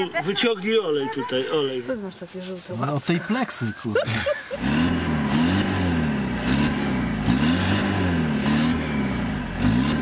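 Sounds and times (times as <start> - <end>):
diesel engine revving: 4.5 - 10.0.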